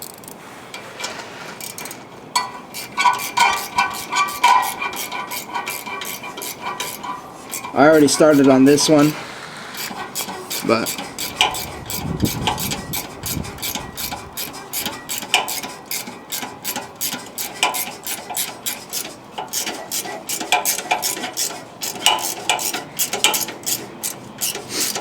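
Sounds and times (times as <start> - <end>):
socket wrench ratcheting: 1.6 - 9.2, 9.8 - 25.0.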